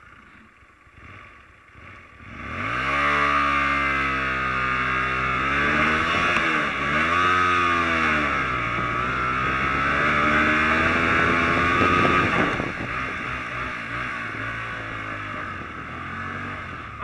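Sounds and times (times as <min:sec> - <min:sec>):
small motorcycle engine revving: 0:00.0 - 0:17.0.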